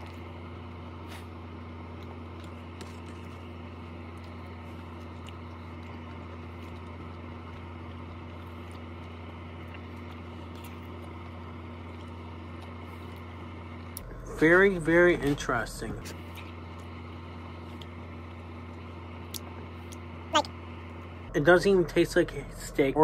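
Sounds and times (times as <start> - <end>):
person chewing: 0.0 - 14.1, 16.0 - 20.1
steady low hum: 0.0 - 23.0.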